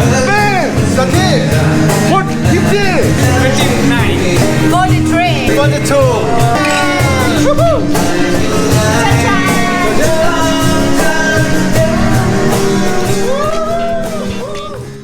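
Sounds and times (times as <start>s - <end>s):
guitar: 0.0s - 15.0s
rock music: 0.0s - 15.0s
steady beat: 0.1s - 14.5s
person singing: 6.2s - 15.0s.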